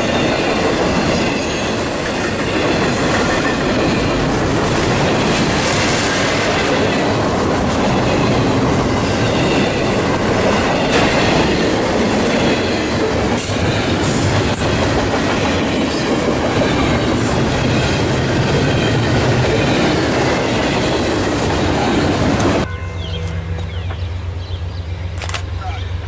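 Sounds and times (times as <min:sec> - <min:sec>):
train wheels clattering on rails: 0:00.0 - 0:22.7.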